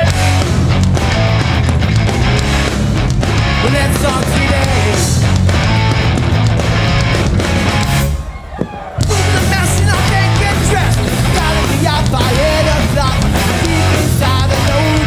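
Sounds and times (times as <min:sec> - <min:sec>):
bass guitar: 0:00.0 - 0:15.0
distorted guitars: 0:00.0 - 0:15.0
drums: 0:00.0 - 0:15.0
shouted vocals: 0:08.2 - 0:15.0.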